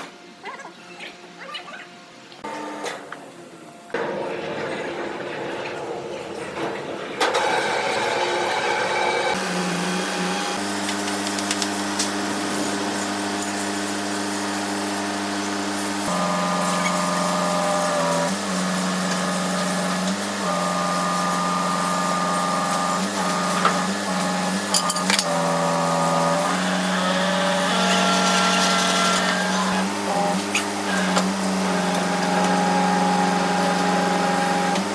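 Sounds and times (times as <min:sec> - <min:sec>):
power tool motor running: 0:07.4 - 0:34.9.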